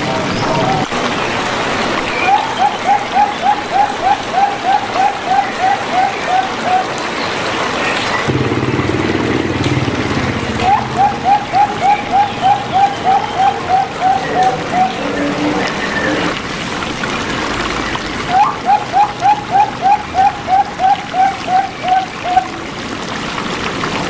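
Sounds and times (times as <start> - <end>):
water rushing: 0.0 - 24.0
dove cooing: 2.1 - 7.3, 8.3 - 16.4, 18.3 - 22.6.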